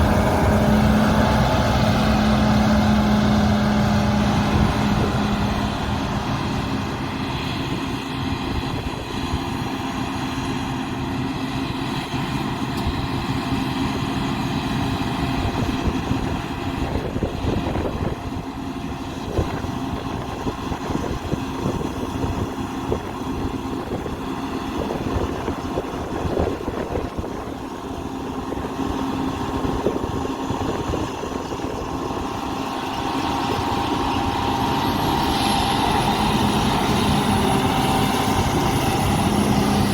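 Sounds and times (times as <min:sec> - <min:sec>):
rumbling noise: 0:00.0 - 0:08.8
constant hum: 0:00.0 - 0:39.9
diesel engine drone: 0:00.0 - 0:39.9.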